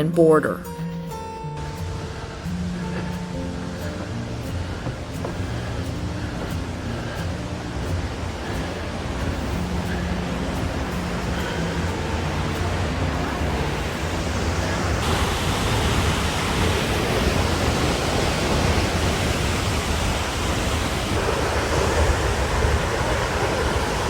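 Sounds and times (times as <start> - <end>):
roar of falling water: 9.0 - 24.0.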